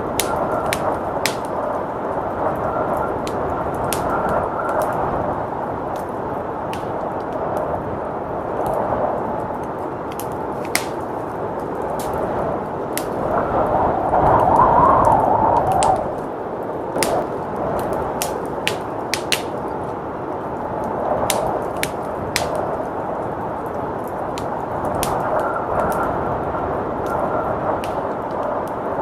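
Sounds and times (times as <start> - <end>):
blizzard wind rushing: 0.0 - 29.0
wood fire crackling and popping: 0.0 - 29.0.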